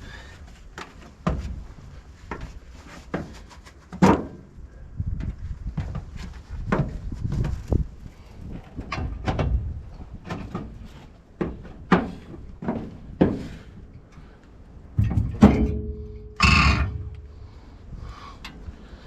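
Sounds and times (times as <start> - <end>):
metal clatter: 15.0 - 17.3
steel parts knocking and clanking: 15.0 - 17.3.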